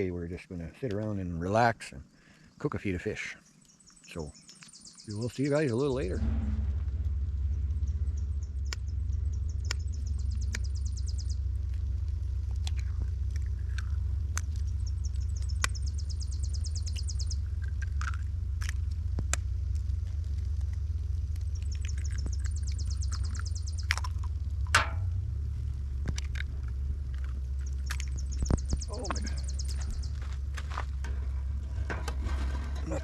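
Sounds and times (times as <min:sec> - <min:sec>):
songbird trilling: 0:03.4 - 0:06.3, 0:07.8 - 0:11.5, 0:14.6 - 0:17.8, 0:21.5 - 0:24.3, 0:27.6 - 0:30.3
low rumble: 0:05.1 - 0:33.0.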